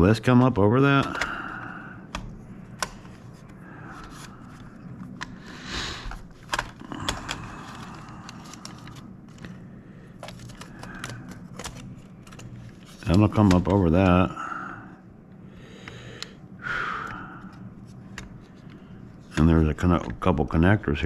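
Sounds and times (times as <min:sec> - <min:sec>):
plastic parts clicking and scraping: 0:06.1 - 0:14.2.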